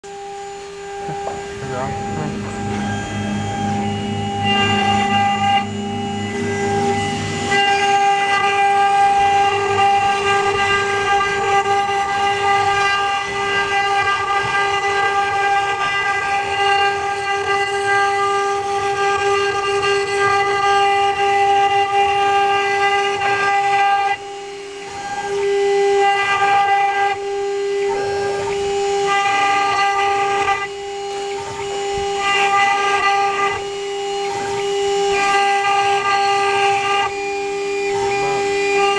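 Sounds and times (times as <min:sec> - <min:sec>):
router whine: 0:00.0 - 0:38.9
low hum: 0:00.2 - 0:13.4.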